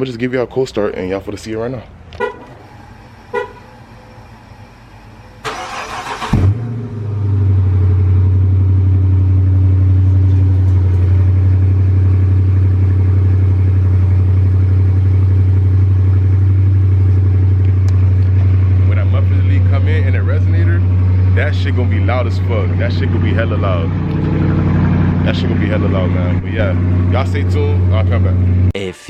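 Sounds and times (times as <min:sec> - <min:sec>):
car engine idling: 0:01.2 - 0:29.0
starter motor cranking: 0:05.4 - 0:06.6.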